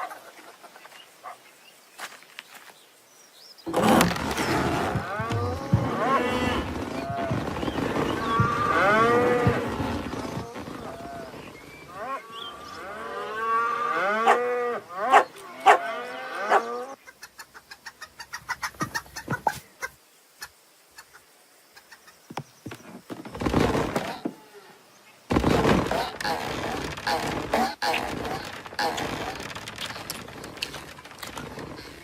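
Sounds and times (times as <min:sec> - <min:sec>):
overlapping animal calls: 0:04.8 - 0:19.9.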